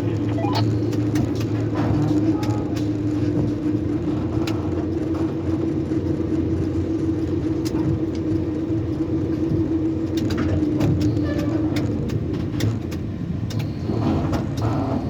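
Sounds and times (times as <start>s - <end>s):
crane machinery hum: 0.0s - 10.0s.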